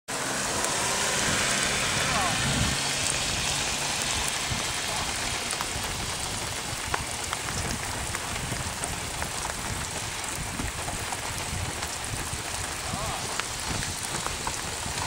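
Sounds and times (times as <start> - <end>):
steady rain hiss: 0.1 - 15.0
raindrops ticking: 0.3 - 15.0.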